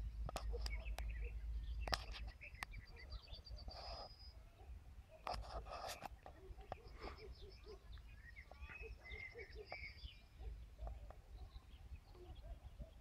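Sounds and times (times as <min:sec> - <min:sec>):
faint birdsong: 0:00.0 - 0:13.0.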